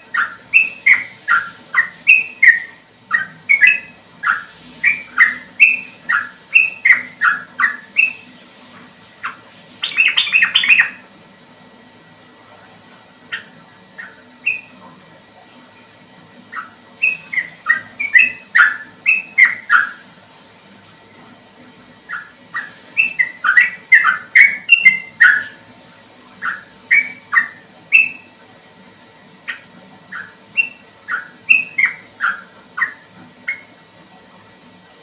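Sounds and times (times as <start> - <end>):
bulbul singing whistled notes: 0.1 - 8.3, 9.8 - 11.0, 14.4 - 14.8, 16.5 - 20.0, 22.1 - 25.6, 26.4 - 28.3, 30.1 - 33.7.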